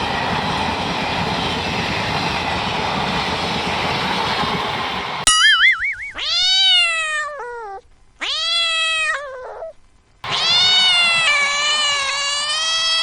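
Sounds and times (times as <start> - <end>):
cat meowing: 6.2 - 9.7.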